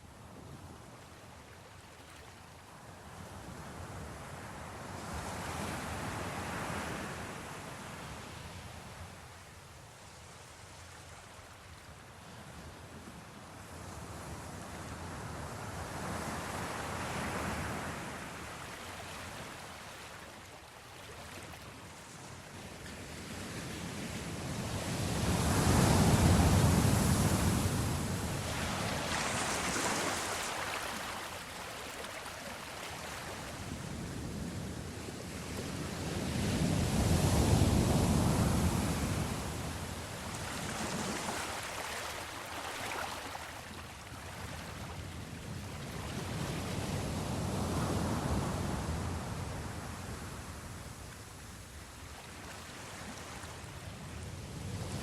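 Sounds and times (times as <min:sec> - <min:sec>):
sea waves washing against a ship: 0:16.0 - 0:55.0.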